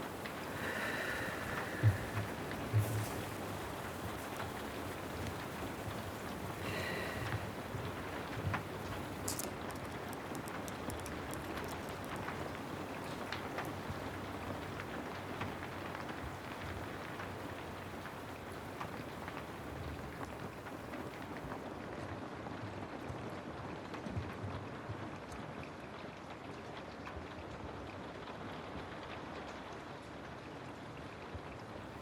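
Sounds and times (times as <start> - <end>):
sharp ticks: 0.0 - 20.0
steady rain: 0.0 - 21.8.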